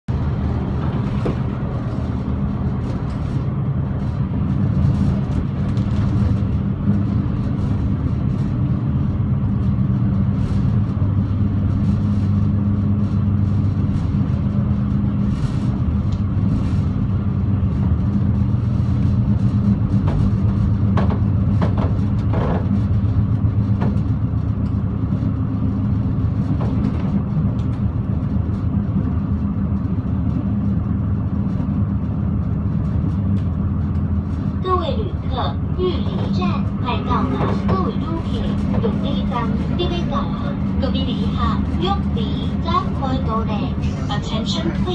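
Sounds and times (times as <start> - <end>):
train rumble and hum: 0.0 - 44.9
train knocks: 0.2 - 7.1, 19.5 - 24.8, 34.7 - 44.9.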